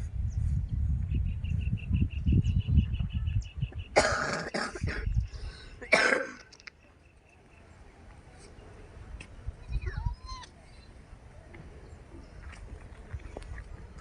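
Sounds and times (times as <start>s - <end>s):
person coughing: 4.0s - 5.1s, 5.9s - 6.4s.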